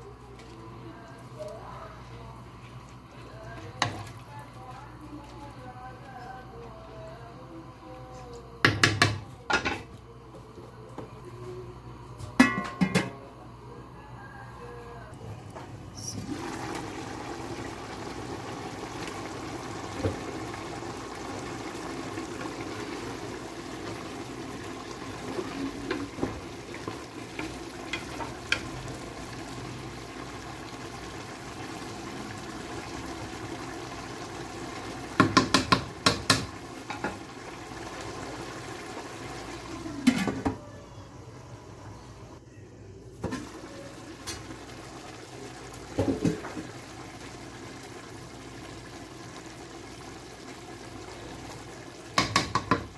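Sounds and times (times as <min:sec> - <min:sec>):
water in cooking pot: 0:15.5 - 0:40.7, 0:43.2 - 0:52.9.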